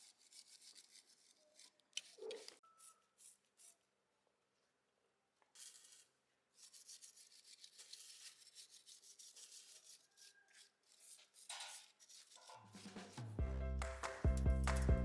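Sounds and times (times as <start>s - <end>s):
faint rubbing strokes: 5.6s - 14.1s.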